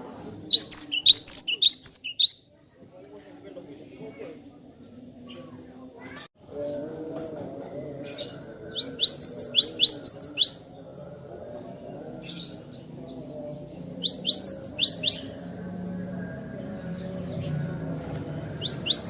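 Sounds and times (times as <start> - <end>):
bird chirping: 0.5 - 2.5, 8.2 - 10.6, 12.3 - 15.4, 18.6 - 19.0.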